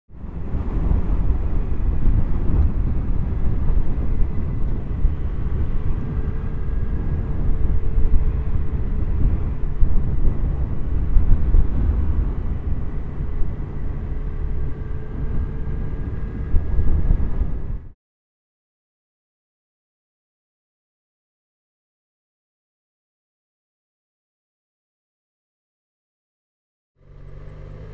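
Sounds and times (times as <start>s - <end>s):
motorcycle engine and tyres humming: 0.1s - 18.0s, 27.0s - 27.9s
wind rush on microphone: 0.1s - 18.0s.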